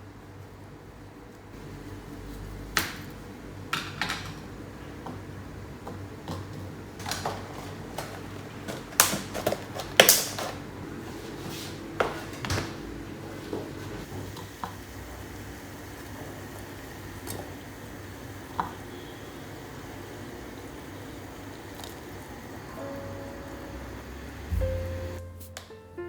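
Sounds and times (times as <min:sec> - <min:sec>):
low steady hum: 0:22.6 - 0:26.0.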